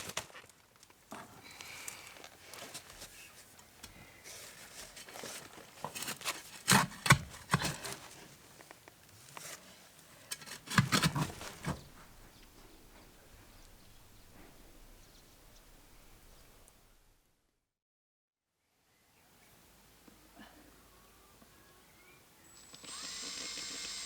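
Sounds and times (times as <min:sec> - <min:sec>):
rustling handling noise: 0:00.0 - 0:16.7.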